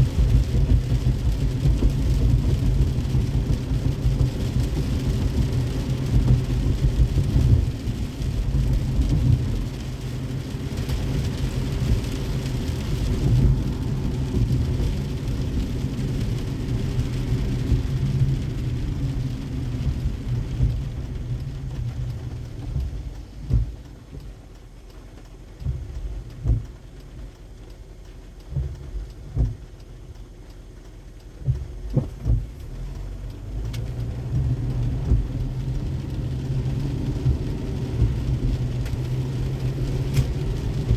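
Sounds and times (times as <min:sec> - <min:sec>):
rain: 0:00.0 - 0:40.9
road and tyre rumble: 0:00.0 - 0:40.9
low thumps: 0:11.6 - 0:24.7, 0:25.6 - 0:27.3, 0:28.4 - 0:30.3, 0:31.3 - 0:40.9.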